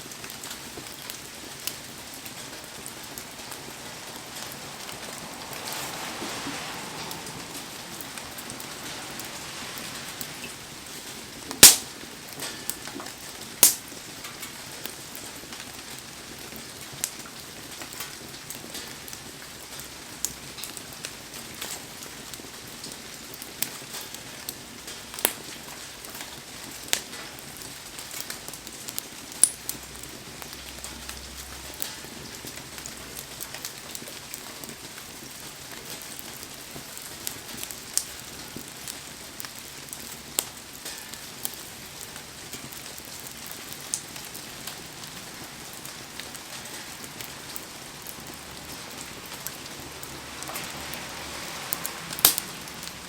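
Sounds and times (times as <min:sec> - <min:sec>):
heavy rain hissing: 0:00.0 - 0:14.8, 0:44.1 - 0:53.0
bonfire popping and cracking: 0:00.0 - 0:50.6, 0:51.7 - 0:53.0.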